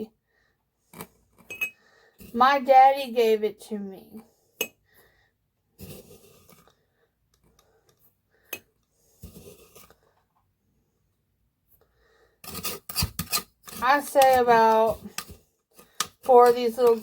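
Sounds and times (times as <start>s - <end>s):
spoon scraping sugar: 5.8s - 6.6s, 9.2s - 10.0s, 12.4s - 17.0s.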